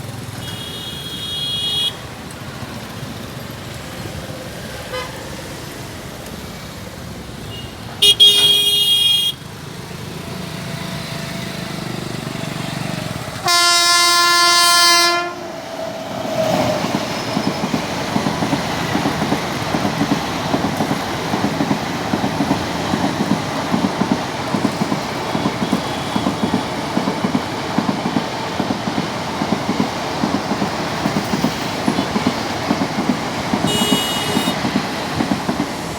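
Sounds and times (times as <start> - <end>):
locomotive horn blast: 0.4 - 2.1, 7.5 - 9.4, 13.4 - 15.6, 33.6 - 34.7
short high horn toot: 7.5 - 9.4, 33.7 - 34.6
train wheels clicking over rail joints: 9.5 - 13.8, 15.5 - 35.9.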